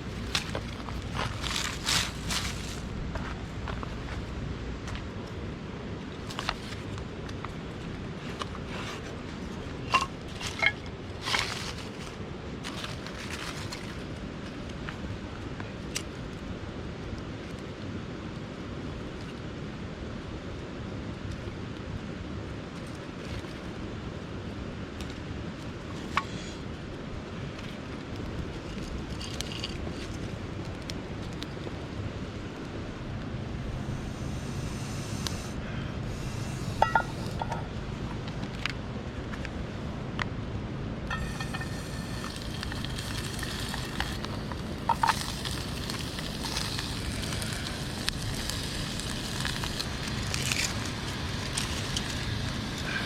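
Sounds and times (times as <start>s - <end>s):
rustling: 0.0s - 4.2s, 8.2s - 14.2s
low background rumble: 23.8s - 53.0s.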